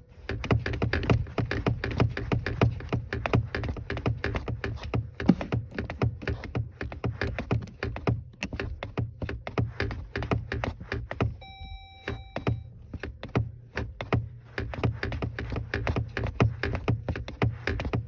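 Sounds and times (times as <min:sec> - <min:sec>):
short steady beep: 0:11.4 - 0:12.7
low hum: 0:11.4 - 0:12.8.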